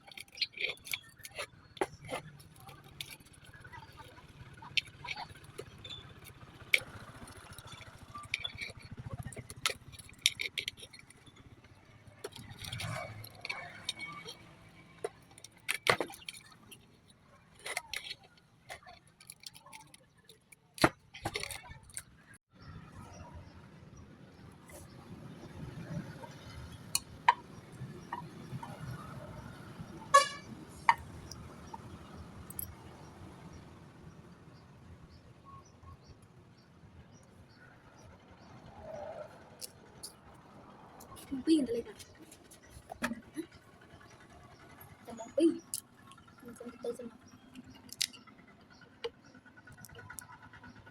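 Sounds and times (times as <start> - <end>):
small hard objects clicking: 0.0 - 22.3, 45.4 - 48.3, 49.0 - 50.4
loud honk-like beep: 30.1 - 30.4.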